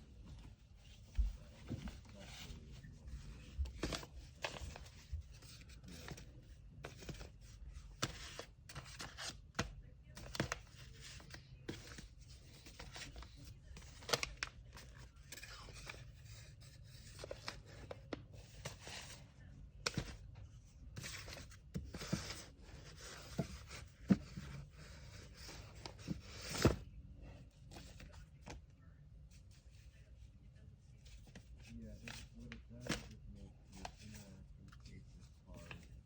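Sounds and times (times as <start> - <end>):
paper rustling: 0.2 - 19.2.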